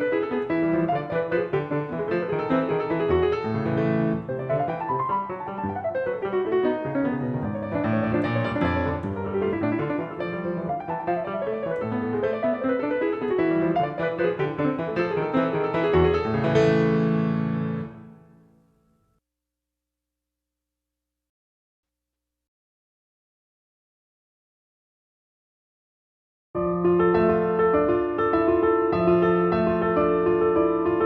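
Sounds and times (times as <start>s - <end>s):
calm solo piano music: 0.0s - 18.4s, 26.6s - 31.0s.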